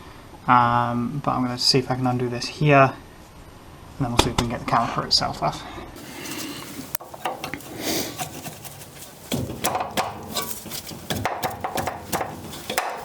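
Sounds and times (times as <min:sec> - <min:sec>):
hand tools clicking on metal: 0:06.3 - 0:13.0.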